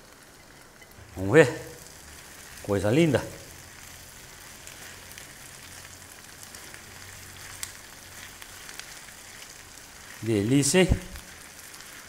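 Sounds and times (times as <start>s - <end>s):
fish sizzling in a frying pan: 0.0s - 12.0s.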